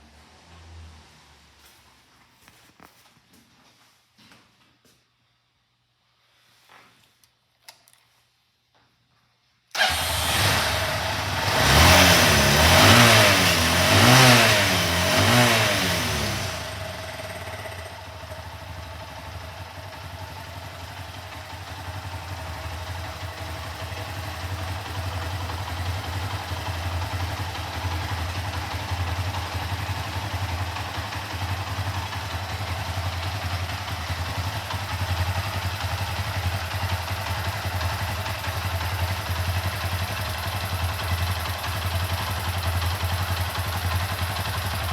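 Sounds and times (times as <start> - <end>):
motorcycle engine revving and idling: 9.8 - 44.9.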